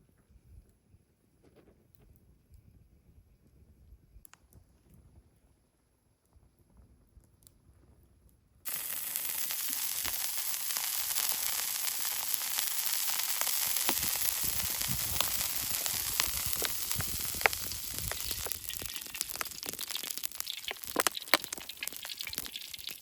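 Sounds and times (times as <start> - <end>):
food sizzling in a pan: 8.7 - 23.0
sharp pops and crackles: 8.7 - 23.0.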